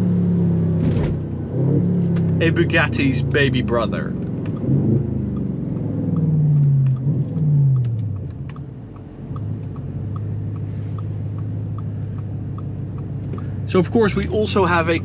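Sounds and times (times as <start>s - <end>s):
car engine from inside cabin: 0.0s - 15.0s
faint regular ticking: 4.1s - 13.9s.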